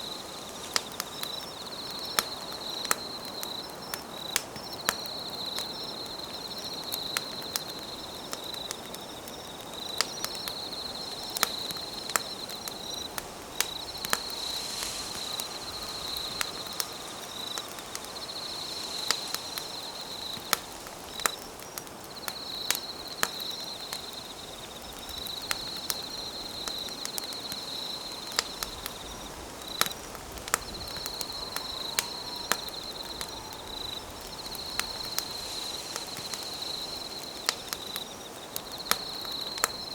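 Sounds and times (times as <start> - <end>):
campfire crackling and popping: 0.0 - 39.9
insect trilling: 10.0 - 24.3, 25.1 - 39.9.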